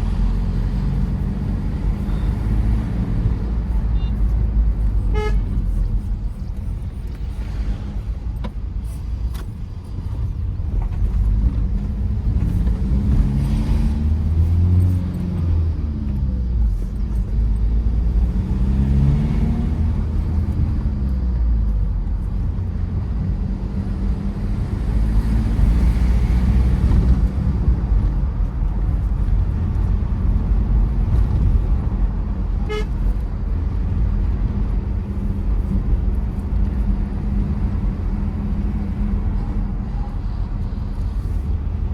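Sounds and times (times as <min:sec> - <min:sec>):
diesel engine and road noise: 0:00.0 - 0:41.9
car horn toot: 0:05.1 - 0:05.6, 0:32.6 - 0:33.0.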